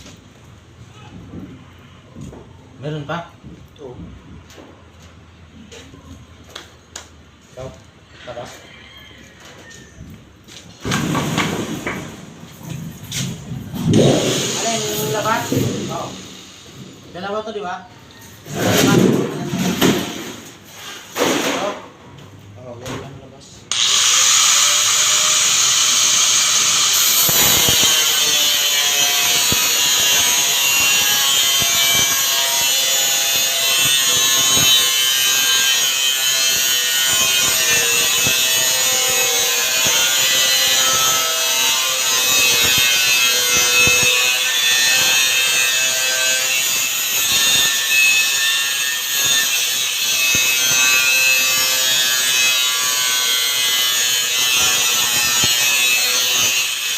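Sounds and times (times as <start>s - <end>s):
power saw cutting: 13.8s - 17.6s, 23.7s - 56.9s.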